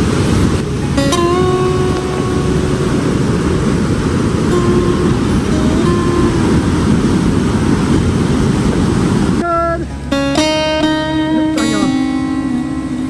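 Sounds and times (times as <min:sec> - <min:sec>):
loud rushing noise: 0:00.0 - 0:10.1
plucked acoustic guitar music: 0:00.0 - 0:13.0.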